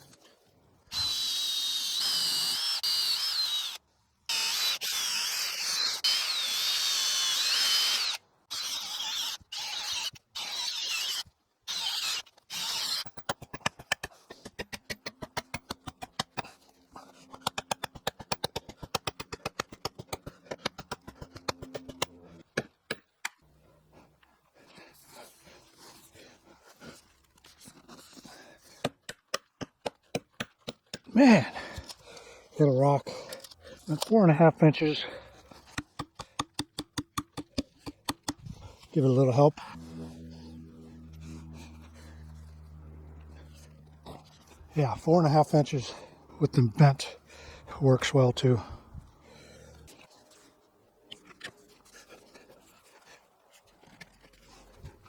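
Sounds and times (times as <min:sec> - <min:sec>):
power drill boring through timber: 0:00.9 - 0:13.4, 0:38.1 - 0:50.1.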